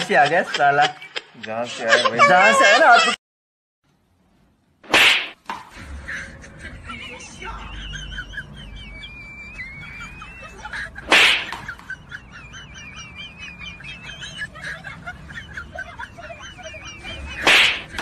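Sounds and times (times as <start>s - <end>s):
birds chirping: 11.8s - 17.9s.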